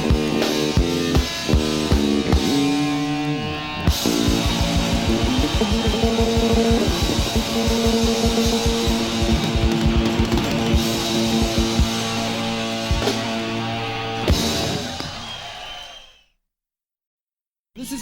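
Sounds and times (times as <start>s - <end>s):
fast drum beat: 0.0s - 2.8s, 3.9s - 13.6s
bass guitar: 0.0s - 15.4s
electric guitar: 0.0s - 15.4s.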